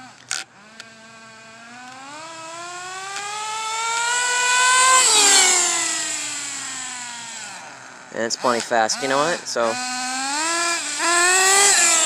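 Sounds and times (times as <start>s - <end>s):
rc car engine high buzzing whine: 0.0s - 12.0s.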